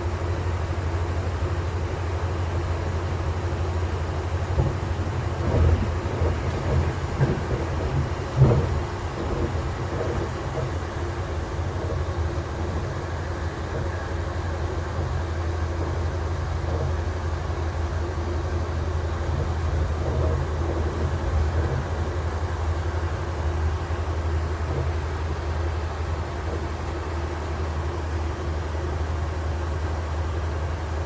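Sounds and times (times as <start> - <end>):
train rumbling on rails: 0.0 - 31.0
train knocks: 4.1 - 27.5.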